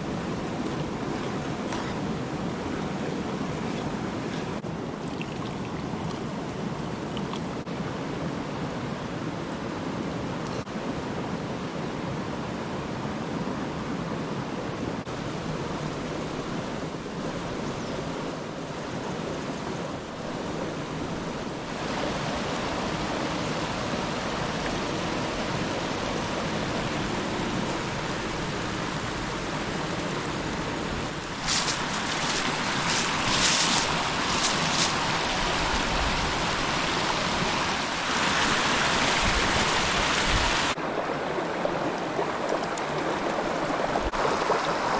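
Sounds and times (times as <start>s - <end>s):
steady outdoor rushing noise: 15.0s - 44.9s.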